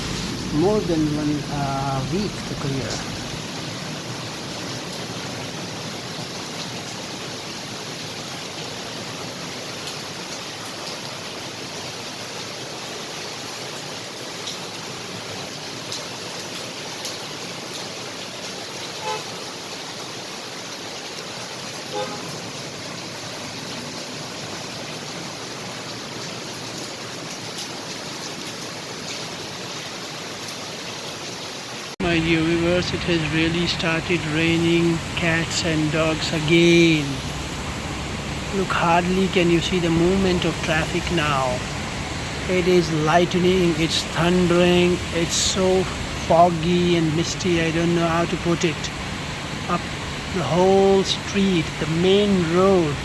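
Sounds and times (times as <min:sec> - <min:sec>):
traffic on wet street: 0:00.0 - 0:12.9, 0:14.4 - 0:29.4, 0:32.0 - 0:53.0
heavy rain pouring: 0:00.0 - 0:53.0
car horn toots: 0:21.9 - 0:22.3.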